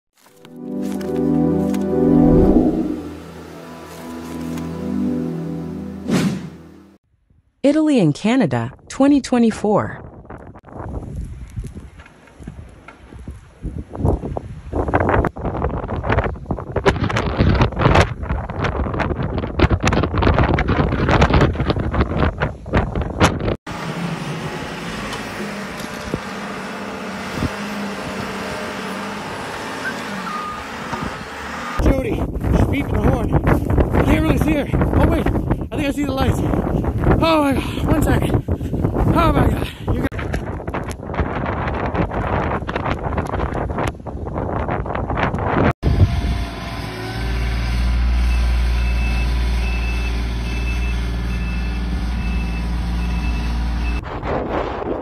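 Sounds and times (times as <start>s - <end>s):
wind on microphone: 10.0s - 23.6s, 31.8s - 46.4s, 54.0s - 55.0s
truck engine running: 23.7s - 31.8s
faint beep: 29.8s - 30.7s
reversing alarm beeping: 29.8s - 31.0s, 48.3s - 54.0s.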